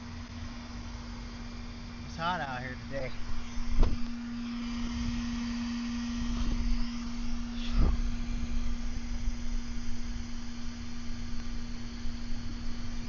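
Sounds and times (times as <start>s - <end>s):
electric fan humming: 0.0s - 13.0s.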